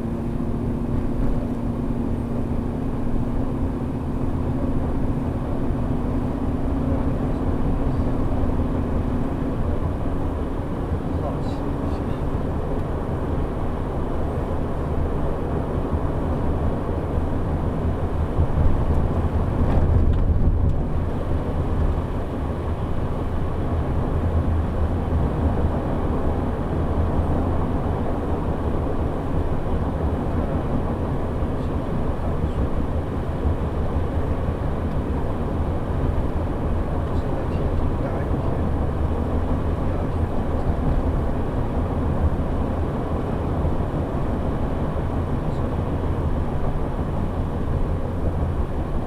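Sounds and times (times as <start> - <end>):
bus engine and road noise: 0.0 - 49.0.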